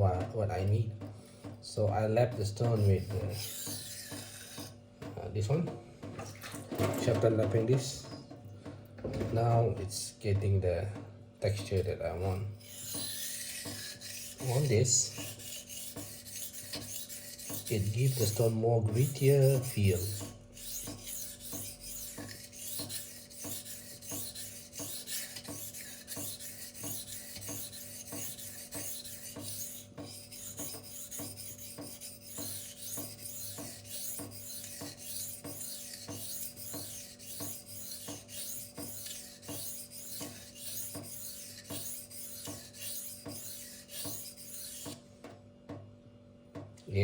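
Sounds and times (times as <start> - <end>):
knife sharpened on a stone: 2.8 - 4.7, 12.6 - 45.0.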